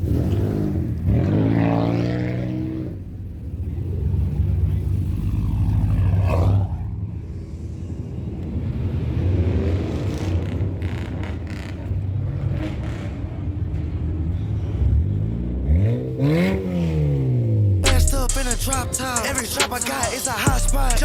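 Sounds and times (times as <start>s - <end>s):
car engine revving: 14.7s - 21.0s.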